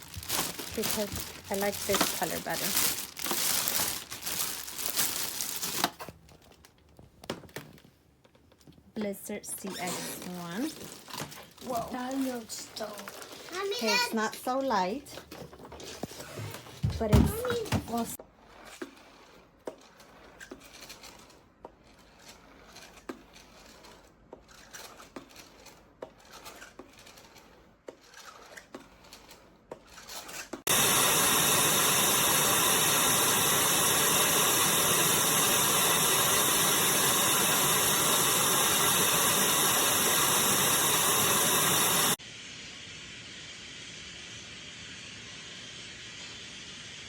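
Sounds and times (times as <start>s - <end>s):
vacuum cleaner motor running: 0.0s - 4.5s, 30.7s - 42.2s
hiss of rushing air: 30.7s - 47.0s.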